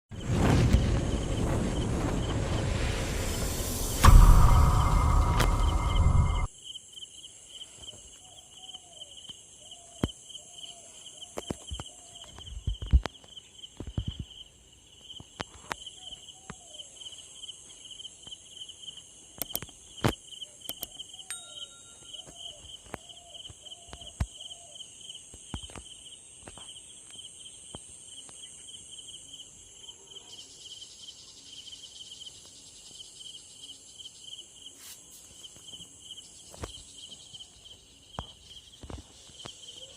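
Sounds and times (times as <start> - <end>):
crickets chirping: 0.2 - 39.9
high insect hiss: 0.2 - 39.9
sharp clicks: 19.4 - 19.8, 20.7 - 21.0.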